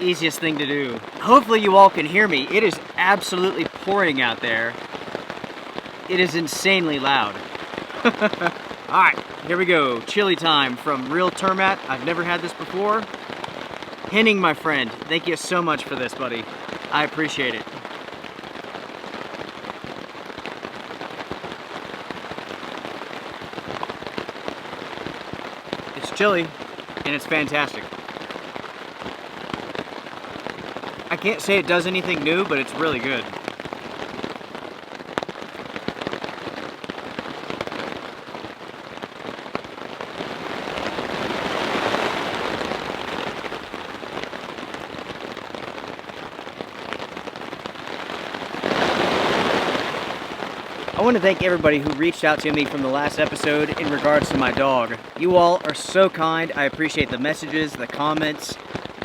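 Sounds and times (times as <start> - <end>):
person speaking: 0.0 - 4.8, 6.1 - 13.1, 14.1 - 17.7, 26.0 - 26.5, 27.1 - 27.9, 31.1 - 33.3, 51.0 - 58.6
heavy rain on a tarp: 0.0 - 59.0.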